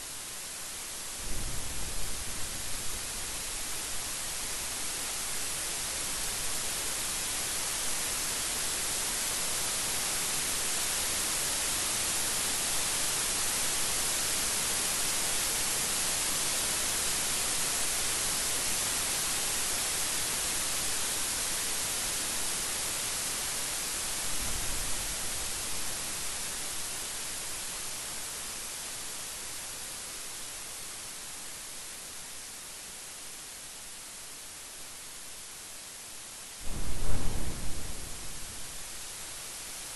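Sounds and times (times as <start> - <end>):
dense rain hissing: 0.0 - 39.9
low thump: 36.6 - 38.8.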